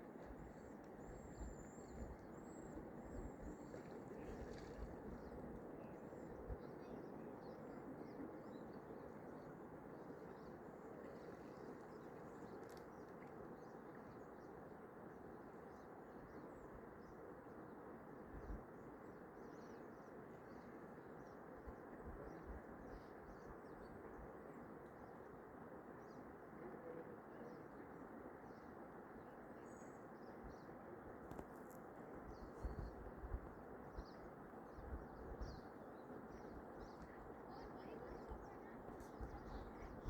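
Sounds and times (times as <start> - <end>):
low outdoor hiss: 0.0 - 40.0
small birds chirping: 31.3 - 33.0, 33.9 - 40.0.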